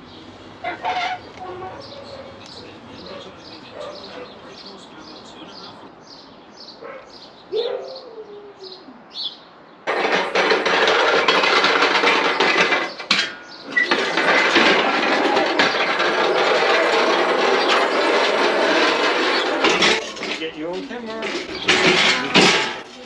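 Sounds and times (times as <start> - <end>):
dolly wheels rattling over paving: 0.0 - 5.7, 9.9 - 23.0
small birds chirping: 1.4 - 9.9.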